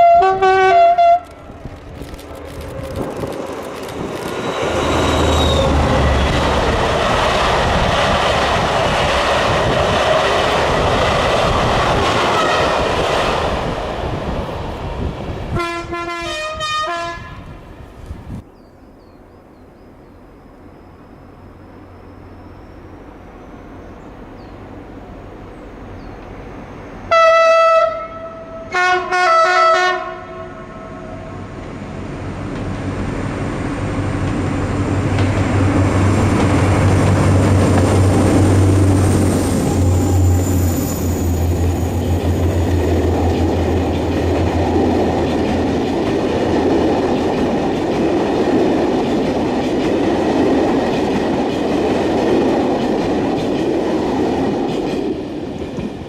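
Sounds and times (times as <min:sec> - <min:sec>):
locomotive horn blasts: 0:00.0 - 0:01.4, 0:15.5 - 0:17.6, 0:27.1 - 0:31.3
diesel locomotive engine drone: 0:00.0 - 0:56.0
carriages rumbling and clacking: 0:01.2 - 0:13.2.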